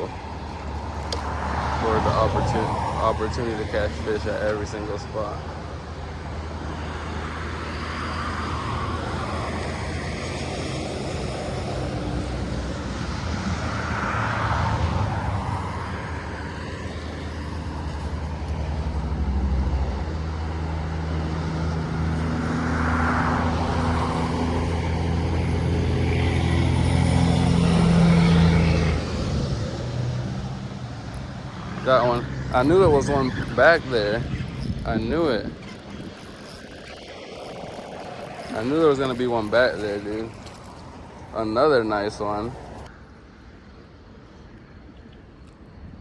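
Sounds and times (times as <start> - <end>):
engine drone: 0.0 - 44.5
rushing noise: 21.9 - 43.0.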